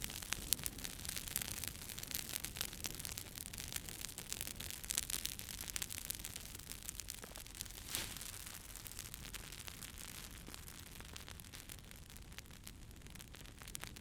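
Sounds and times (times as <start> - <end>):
campfire crackling and popping: 0.0 - 14.0
fire hissing: 7.4 - 8.9.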